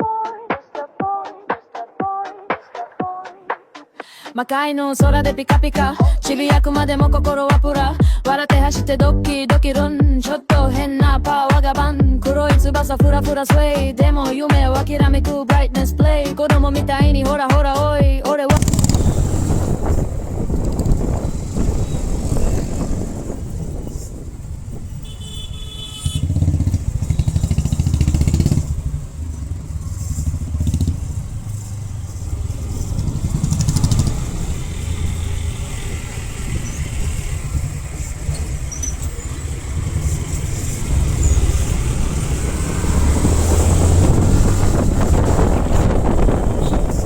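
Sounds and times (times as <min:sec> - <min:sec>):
motorcycle engine running: 0:18.5 - 0:47.0.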